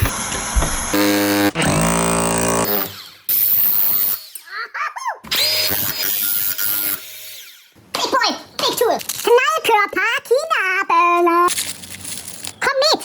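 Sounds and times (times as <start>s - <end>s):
power tool running: 0.0s - 4.5s, 5.3s - 7.7s.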